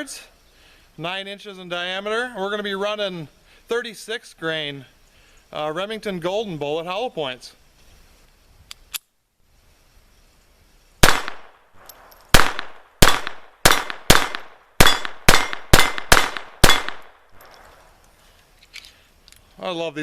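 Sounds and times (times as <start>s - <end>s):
pistol shots: 11.0s - 17.7s.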